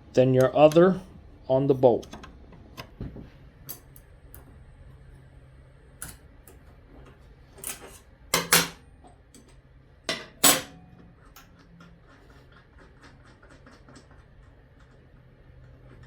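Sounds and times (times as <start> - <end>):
metal wrench and bolt clanking: 10.1 - 10.8.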